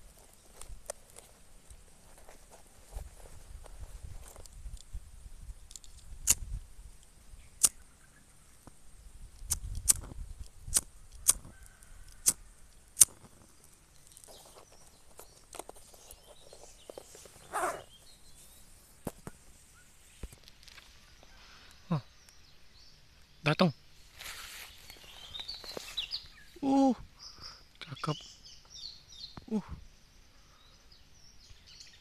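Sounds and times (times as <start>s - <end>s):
sharp clicks: 9.3s - 11.5s, 12.1s - 13.3s.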